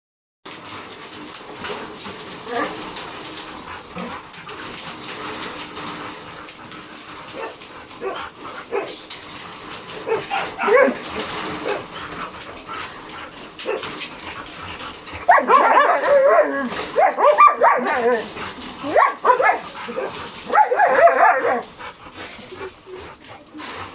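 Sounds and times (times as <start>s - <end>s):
dogs whining and yelping: 6.2s - 23.9s.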